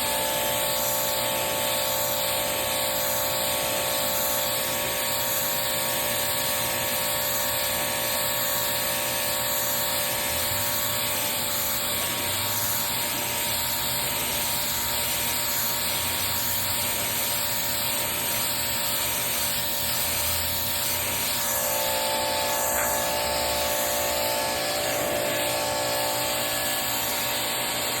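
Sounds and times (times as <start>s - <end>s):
pump motor whine: 0.0s - 28.0s
water jet hissing: 9.6s - 28.0s.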